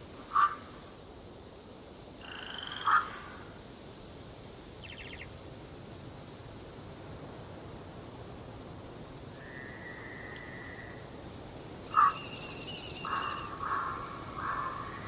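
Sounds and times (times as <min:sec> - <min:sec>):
steady low hiss: 0:00.0 - 0:15.0
birds whistling calls: 0:04.8 - 0:05.3, 0:11.9 - 0:15.0.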